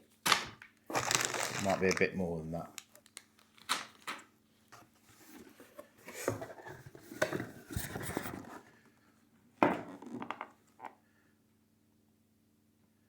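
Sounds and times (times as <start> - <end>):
plastic parts clattering: 0.9 - 2.1.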